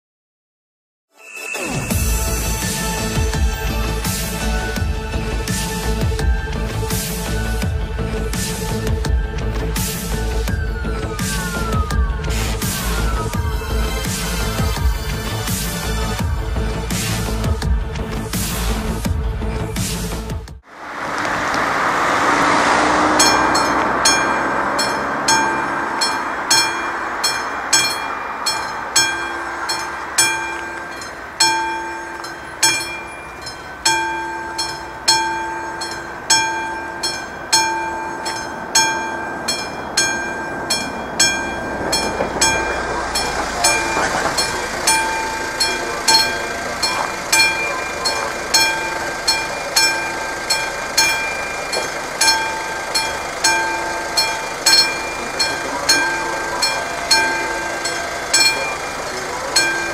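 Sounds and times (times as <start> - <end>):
level-crossing warning bell: 1.2 - 17.6, 21.9 - 59.9
train passing: 20.7 - 59.9.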